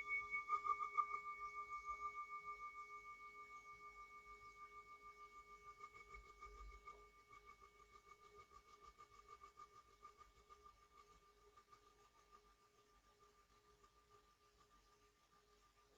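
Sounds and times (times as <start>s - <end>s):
singing bowl ringing: 0.0s - 1.7s.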